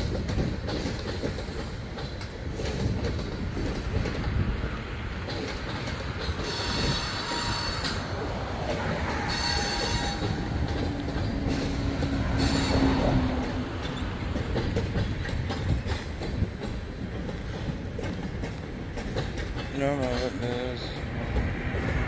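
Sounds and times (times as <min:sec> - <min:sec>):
freight train rolling over rails: 0:00.0 - 0:22.0
metallic wheel squeal: 0:06.4 - 0:08.1, 0:09.1 - 0:14.1.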